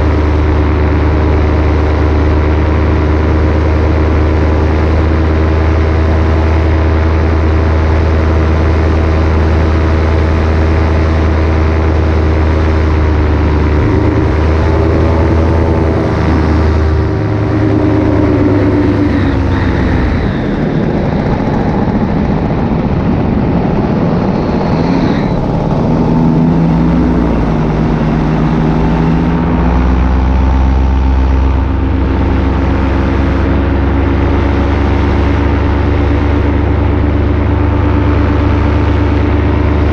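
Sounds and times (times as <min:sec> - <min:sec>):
paramotor engine and propeller drone: 0:00.0 - 0:39.9.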